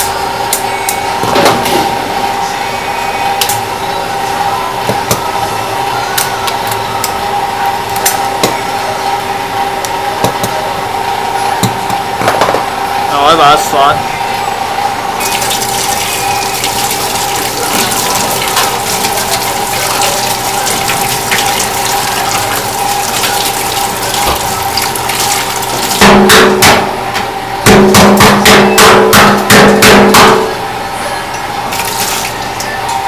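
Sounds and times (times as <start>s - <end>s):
tap water running: 15.2s - 26.0s, 31.7s - 32.7s.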